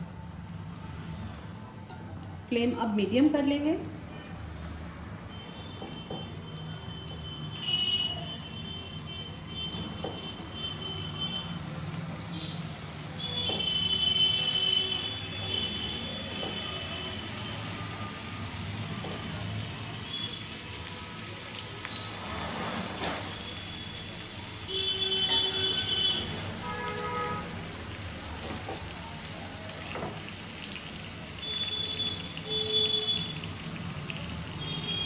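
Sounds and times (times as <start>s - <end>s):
chicken sizzling in a pan: 7.1s - 35.0s.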